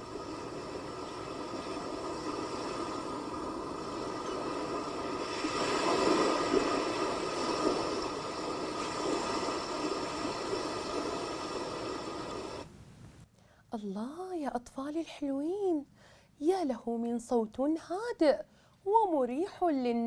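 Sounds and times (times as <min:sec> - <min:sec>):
sea waves surf: 0:00.0 - 0:12.7.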